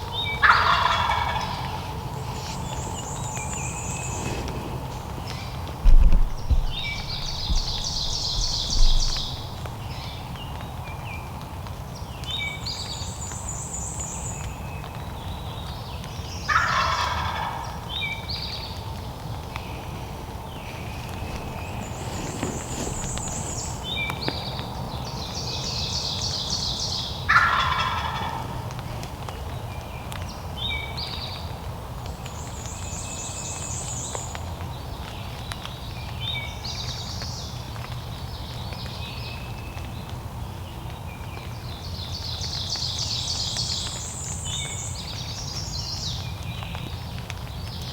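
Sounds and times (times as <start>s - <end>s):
songbirds singing: 0.0s - 47.9s
turkey gobbling: 0.2s - 3.0s, 16.5s - 17.8s, 27.3s - 28.8s.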